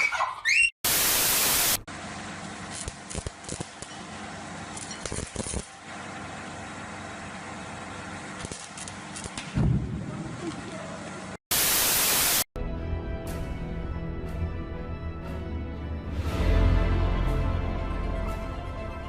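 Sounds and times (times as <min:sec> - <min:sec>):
burst of white-noise static: 0:00.8 - 0:01.9, 0:11.5 - 0:12.5.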